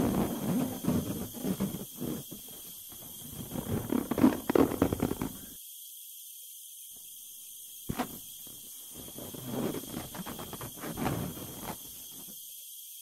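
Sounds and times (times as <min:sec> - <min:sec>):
balloon rubber creaking and squeaking: 0:00.0 - 0:05.6, 0:07.9 - 0:08.2, 0:08.9 - 0:12.3.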